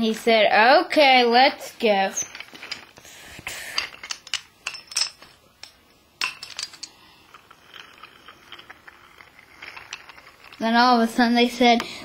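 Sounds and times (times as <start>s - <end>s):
toy trains clicking and clacking: 6.4s - 11.9s.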